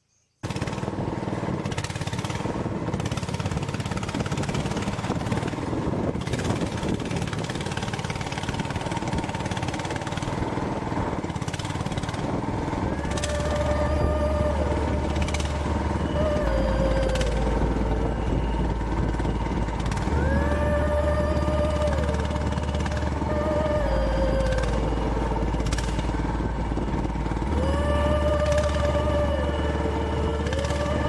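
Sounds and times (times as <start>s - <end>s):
vehicle engine noise: 0.4s - 31.0s
held tone: 12.7s - 31.0s.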